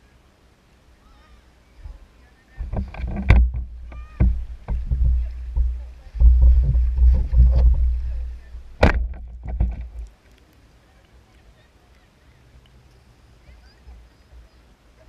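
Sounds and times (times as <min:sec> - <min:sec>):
wind rumble on microphone: 0:01.7 - 0:10.2
hull slapping water: 0:01.8 - 0:11.5.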